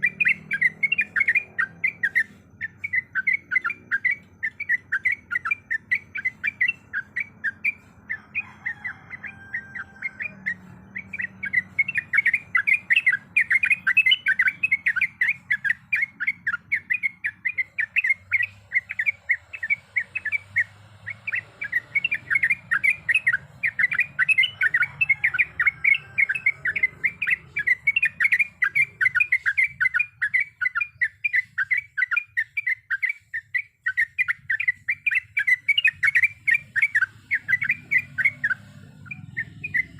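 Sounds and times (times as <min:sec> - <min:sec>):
bird singing sharp notes: 0:00.0 - 0:39.9.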